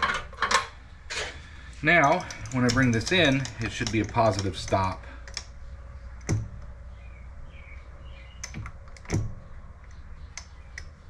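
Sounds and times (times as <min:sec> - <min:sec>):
steady low hum: 0:00.0 - 0:11.0
sharp metal clicks and taps: 0:02.0 - 0:06.8, 0:08.4 - 0:11.0.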